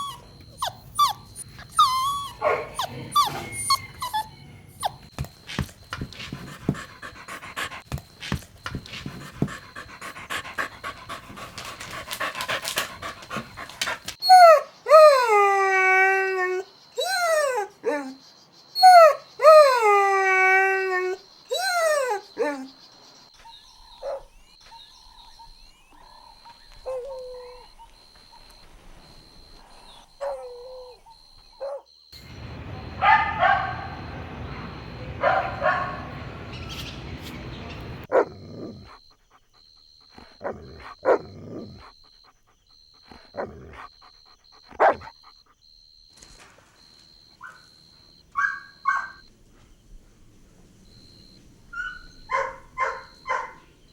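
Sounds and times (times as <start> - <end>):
puppies barking: 0.0 - 15.2, 32.2 - 38.2, 48.4 - 49.3, 51.8 - 53.8
puppies whimpering and yipping: 0.0 - 16.1
puppy yelps: 0.0 - 18.2, 18.8 - 22.7, 30.2 - 34.2, 34.8 - 37.0, 47.4 - 47.8, 48.4 - 49.3, 51.7 - 53.6.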